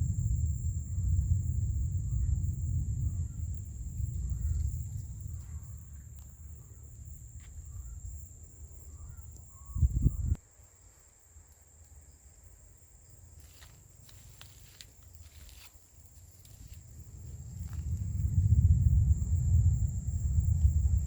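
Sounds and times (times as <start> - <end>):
low rumble: 0.0 - 10.4, 16.5 - 21.0
insects trilling: 0.0 - 21.0.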